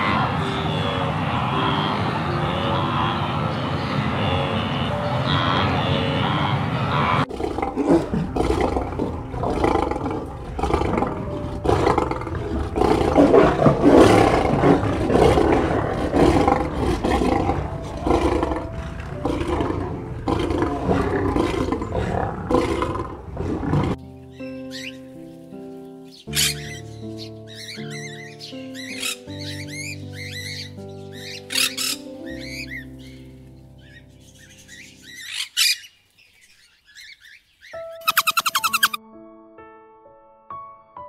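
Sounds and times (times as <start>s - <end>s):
lion cub roaring: 5.2s - 24.0s.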